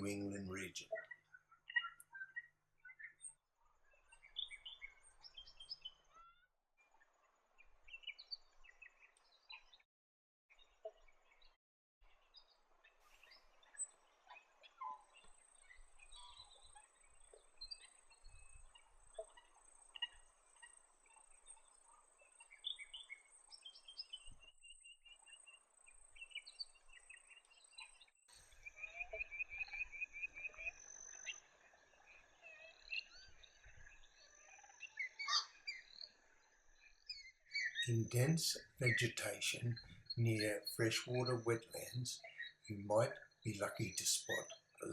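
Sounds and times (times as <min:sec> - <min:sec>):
background hiss: 0:37.9 - 0:44.9.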